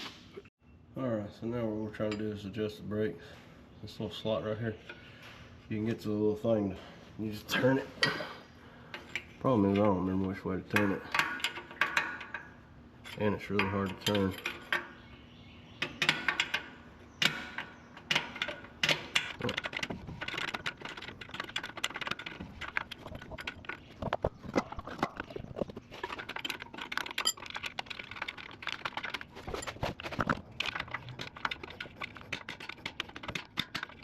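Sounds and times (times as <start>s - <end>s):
metal clicks and scrapes: 8.9s - 15.0s, 15.8s - 34.0s.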